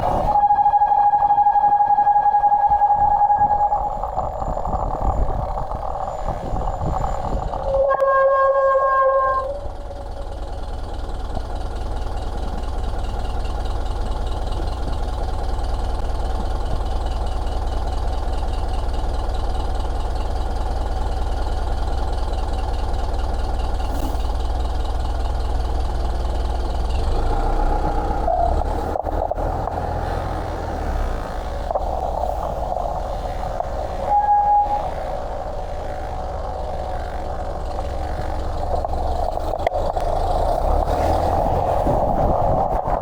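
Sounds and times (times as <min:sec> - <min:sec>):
vehicle engine rumble: 0:00.0 - 0:43.0
fine even ticking: 0:23.9 - 0:40.8.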